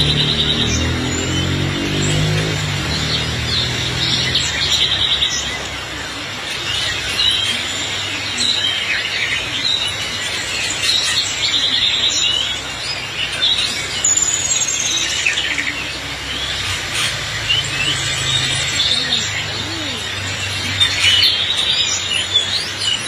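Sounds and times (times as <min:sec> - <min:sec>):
songbirds chirping and singing: 0:00.0 - 0:23.0.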